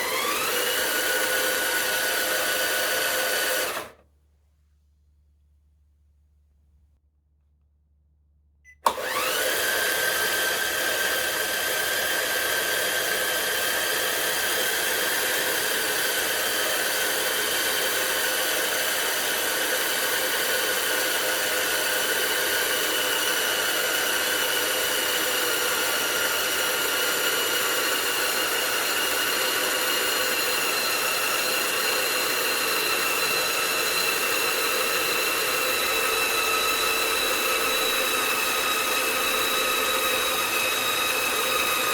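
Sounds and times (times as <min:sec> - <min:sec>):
electric motor whining: 0:00.0 - 0:04.0, 0:08.9 - 0:17.6, 0:22.4 - 0:41.9
motor switch click: 0:08.8 - 0:09.4.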